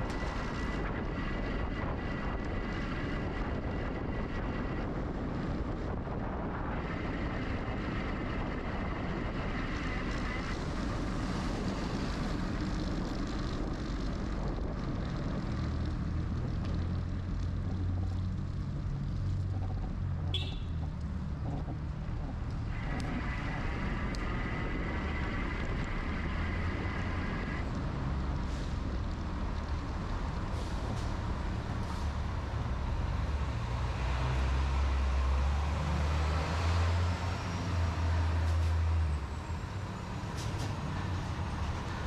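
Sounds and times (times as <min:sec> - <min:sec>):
heavy vehicle engine rumbling: 0:00.0 - 0:42.0
street traffic: 0:00.0 - 0:42.0.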